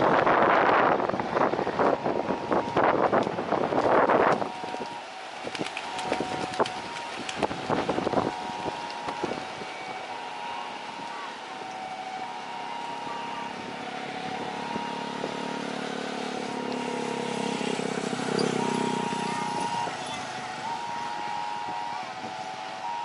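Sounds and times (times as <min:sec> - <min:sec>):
motorcycle engine approaching: 0:13.8 - 0:21.1.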